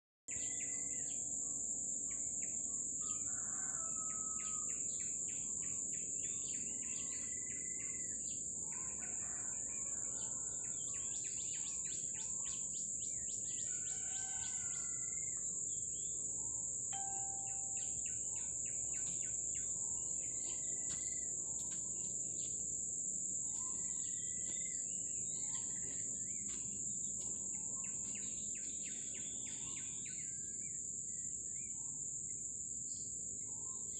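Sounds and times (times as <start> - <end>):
insect drone: 0.3 - 33.9
bird chirps: 10.8 - 22.6, 23.4 - 32.0.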